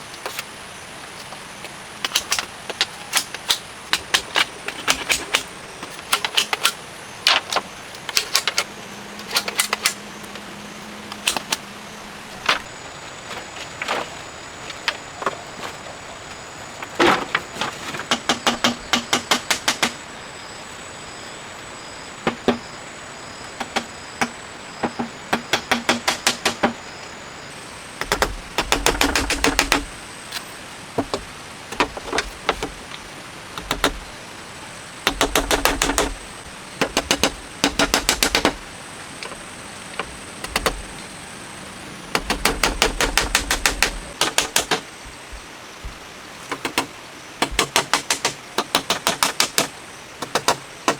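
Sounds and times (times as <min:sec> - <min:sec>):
rapid sharp knocks: 0:18.0 - 0:20.0, 0:22.2 - 0:22.7, 0:23.6 - 0:26.8, 0:28.0 - 0:30.0, 0:31.0 - 0:33.0, 0:33.6 - 0:34.1, 0:35.0 - 0:39.4, 0:40.0 - 0:41.0, 0:42.1 - 0:50.9.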